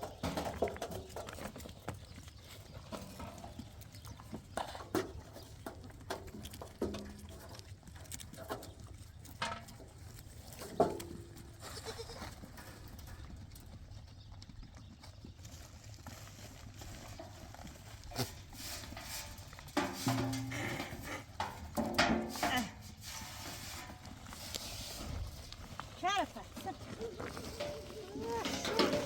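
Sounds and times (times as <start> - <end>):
livestock bleating: 11.6 - 12.3.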